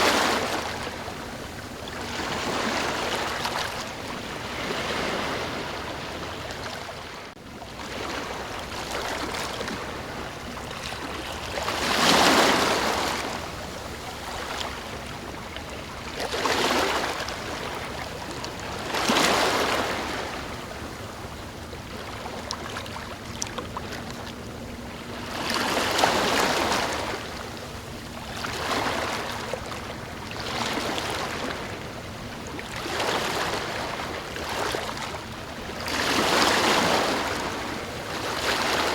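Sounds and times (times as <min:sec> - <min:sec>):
ocean waves washing in: 0:00.0 - 0:24.0.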